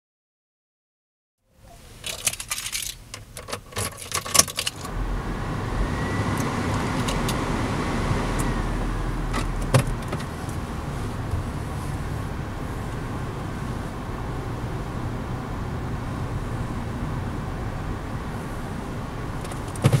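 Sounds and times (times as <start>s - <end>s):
car engine starting and idling: 1.8s - 20.0s
car keys jangling: 2.0s - 4.9s.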